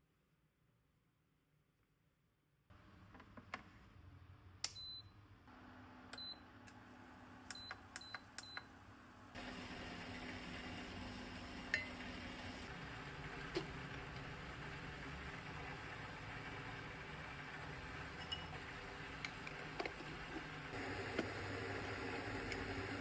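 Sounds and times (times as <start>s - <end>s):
appliance humming: 5.5s - 23.0s.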